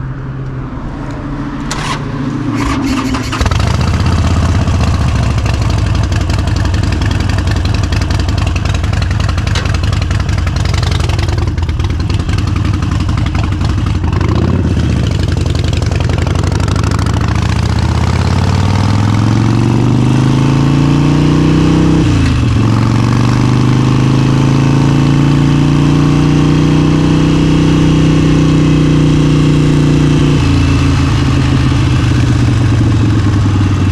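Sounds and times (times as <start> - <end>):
motorcycle engine running: 1.7 - 33.9.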